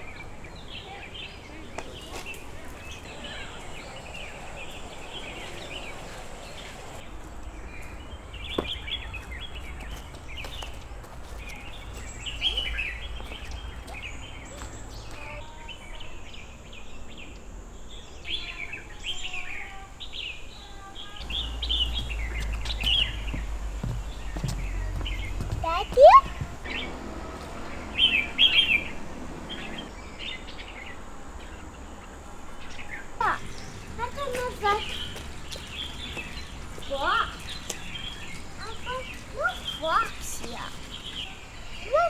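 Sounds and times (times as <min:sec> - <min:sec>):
birds chirping and calling: 0:00.0 - 0:42.0
low rumble: 0:21.2 - 0:28.1.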